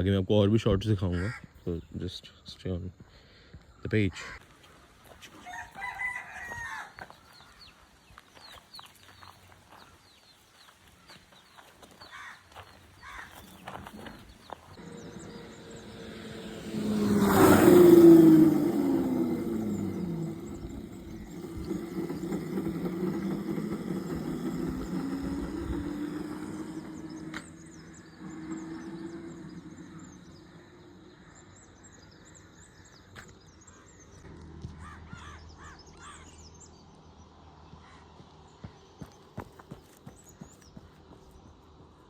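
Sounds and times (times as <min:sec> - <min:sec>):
birds calling: 0:00.0 - 0:42.0
motor vehicle passing: 0:12.6 - 0:42.0.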